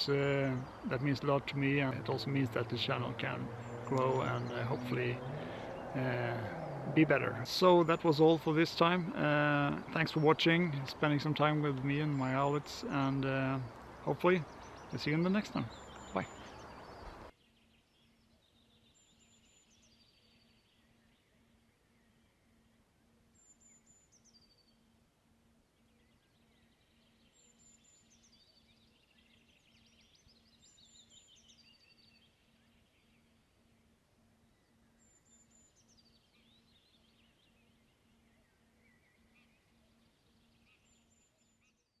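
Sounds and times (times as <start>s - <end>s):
soft bird twittering: 0.0s - 22.7s.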